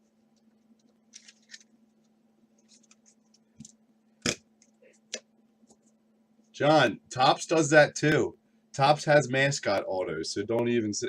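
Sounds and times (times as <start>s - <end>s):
faint steady hum: 0.0s - 11.0s
cards and wrappers crackling: 1.1s - 1.8s.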